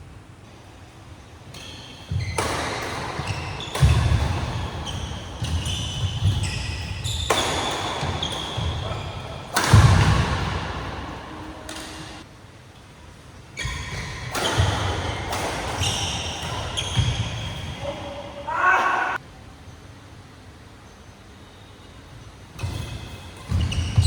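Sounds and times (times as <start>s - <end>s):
shoes squeaking on court floor: 1.2s - 12.2s, 13.5s - 18.4s, 20.8s - 24.0s.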